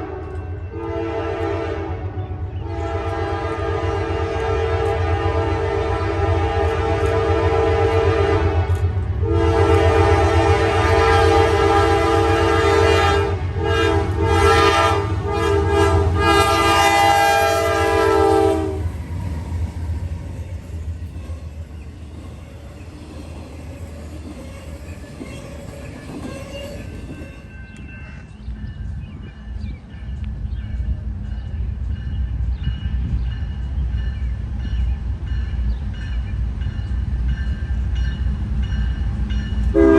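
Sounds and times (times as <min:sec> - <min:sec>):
locomotive air horn blasts: 0:00.0 - 0:18.9
train rumbling by: 0:00.0 - 0:39.9.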